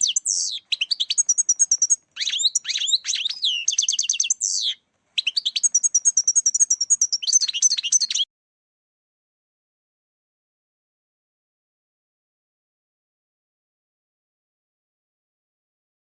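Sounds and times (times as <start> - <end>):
goldfinch twittering song: 0.0 - 8.3.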